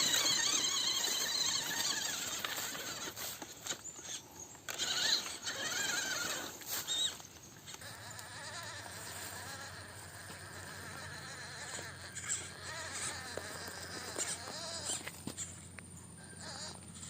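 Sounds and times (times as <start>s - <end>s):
electric motor and gearbox whining: 0.0s - 17.0s.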